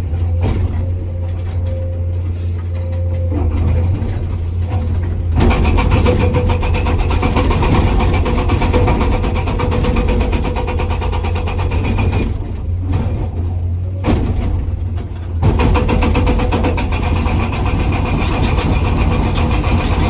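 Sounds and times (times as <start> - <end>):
diesel engine running: 0.0 - 20.0
hydraulic breaker hammering rock: 3.3 - 13.5, 14.1 - 20.0.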